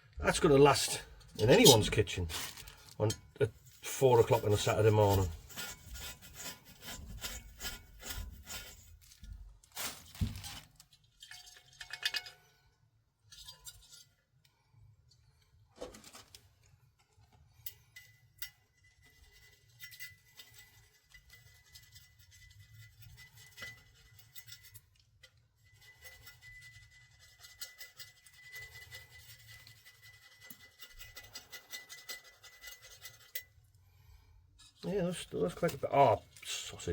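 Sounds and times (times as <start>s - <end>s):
light scraping: 0.2s - 8.9s.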